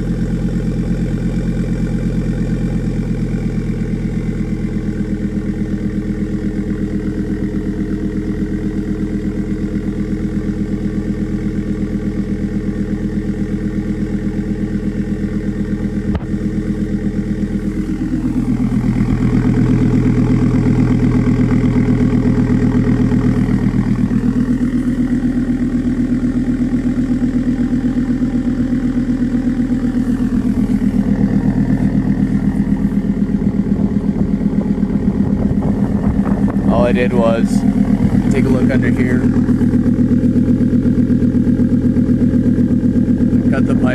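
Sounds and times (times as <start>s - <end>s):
car engine idling: 0.0s - 43.9s.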